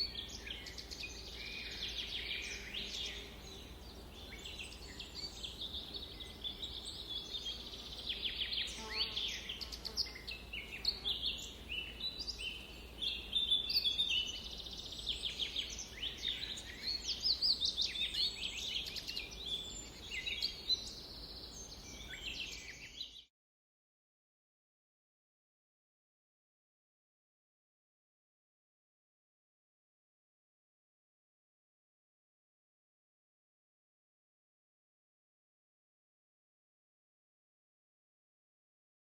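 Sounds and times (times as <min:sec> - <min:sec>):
songbirds chirping and singing: 0:00.0 - 0:23.3.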